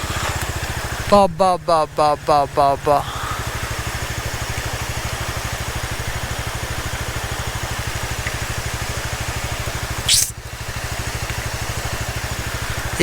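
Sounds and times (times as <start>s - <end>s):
motorcycle engine idling: 0.0s - 13.0s
short sharp hiss: 10.0s - 10.4s.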